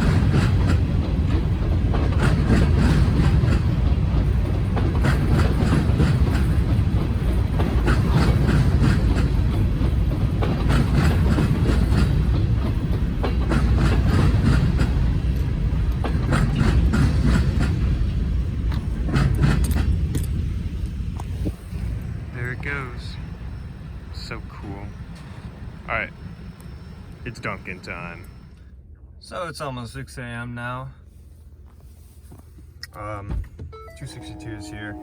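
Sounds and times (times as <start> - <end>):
wheels clicking over rail joints: 0.0 - 21.4
freight train cars rumbling: 0.0 - 35.0.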